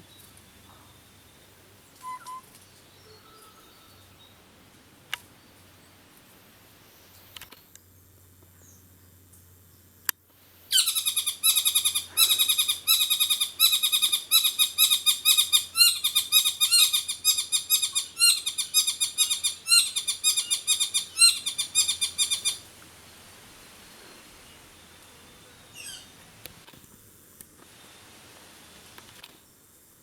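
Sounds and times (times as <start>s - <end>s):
bird chattering call: 10.7s - 22.6s.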